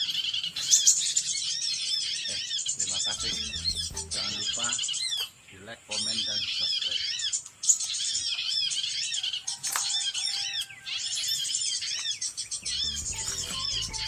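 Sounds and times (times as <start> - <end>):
small birds chirping: 0.0 - 14.0
low musical beat: 3.2 - 4.7, 12.6 - 14.0.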